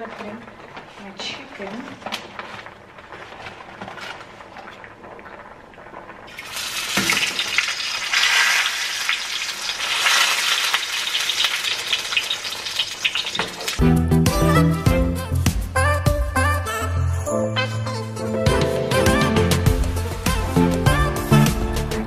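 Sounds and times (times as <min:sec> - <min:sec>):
chicken sizzling in hot oil: 0:05.9 - 0:13.8
music: 0:13.8 - 0:22.0.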